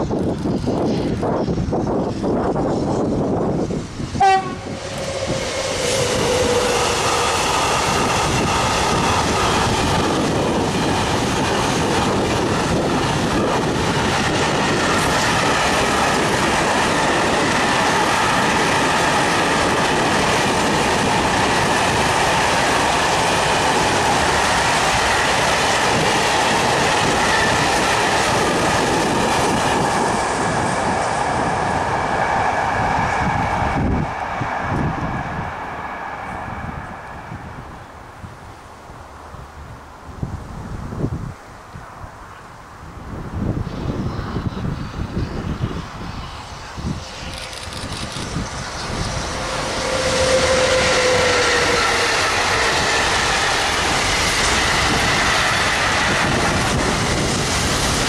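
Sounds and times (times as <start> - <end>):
freight train wheels clickety-clack: 0.0 - 36.6, 43.6 - 58.0.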